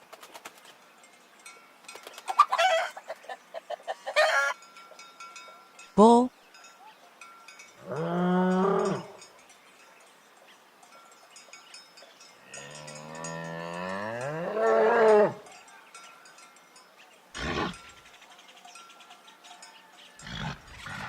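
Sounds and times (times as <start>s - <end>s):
bull mooing: 7.8s - 9.2s, 12.5s - 15.4s.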